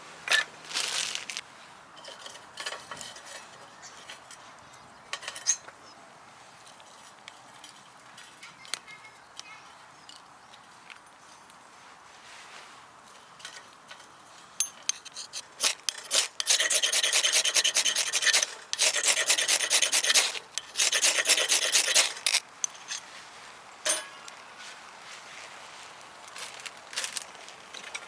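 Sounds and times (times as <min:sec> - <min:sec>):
rapid rasping scraping: 0:15.2 - 0:22.3.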